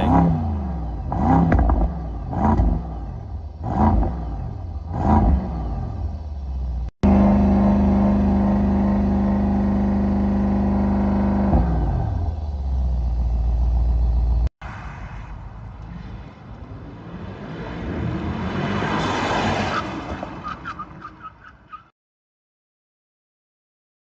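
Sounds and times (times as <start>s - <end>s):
car engine revving and idling: 0.0s - 14.5s
road noise: 0.0s - 21.9s.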